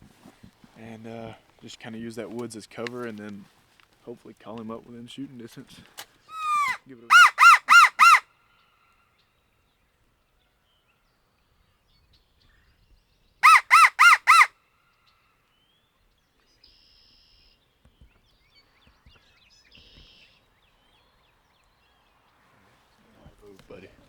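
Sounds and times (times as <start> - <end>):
faint distant calls: 5.1 - 9.6, 13.4 - 17.8
crow locator call: 6.3 - 8.2, 13.4 - 14.5.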